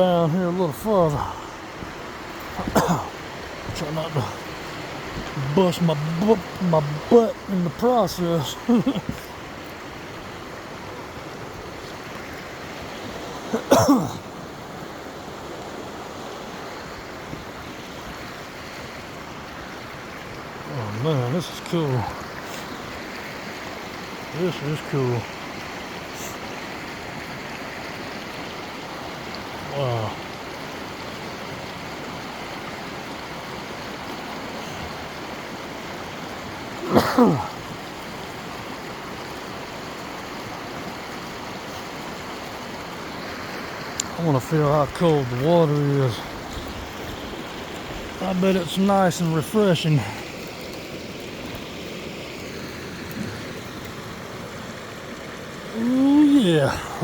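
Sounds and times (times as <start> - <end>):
stream flowing over rocks: 0.0 - 57.0
person grunting: 1.0 - 1.6, 2.6 - 3.1, 36.8 - 37.6, 55.7 - 57.0.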